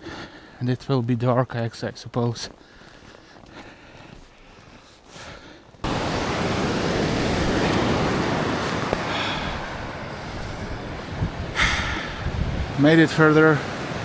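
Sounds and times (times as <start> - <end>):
wind at the shore: 5.6 - 14.0
sea surf: 5.8 - 14.0.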